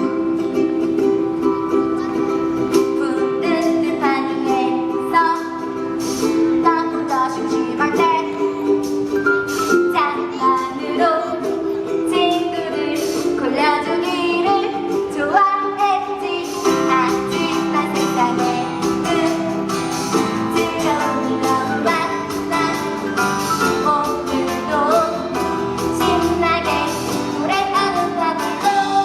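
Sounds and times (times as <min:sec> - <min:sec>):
woman singing: 0:00.0 - 0:09.0, 0:09.6 - 0:29.0
instrumental backing with plucked strings: 0:00.0 - 0:29.0.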